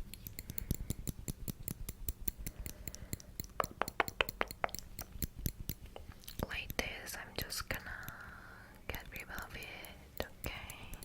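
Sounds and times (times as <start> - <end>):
metal tool clicking rapidly: 0.1 - 5.9.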